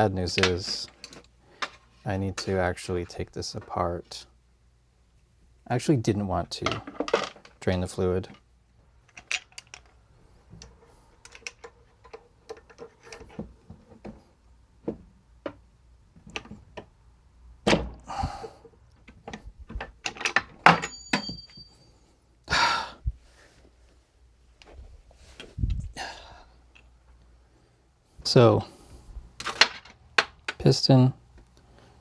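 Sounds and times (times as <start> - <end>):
small tools clicking and knocking: 9.0 - 14.1.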